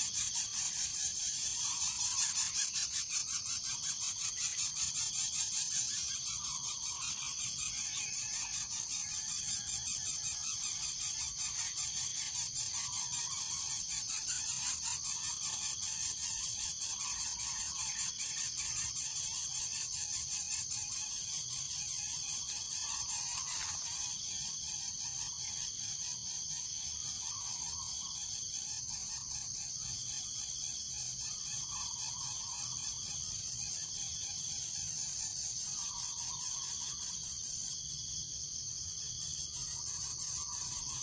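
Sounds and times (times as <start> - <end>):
high-pitched insect chorus: 0.0 - 41.0.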